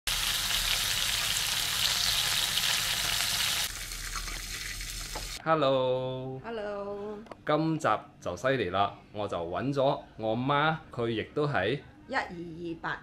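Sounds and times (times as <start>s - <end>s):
prawns sizzling in a wok: 0.1s - 5.4s.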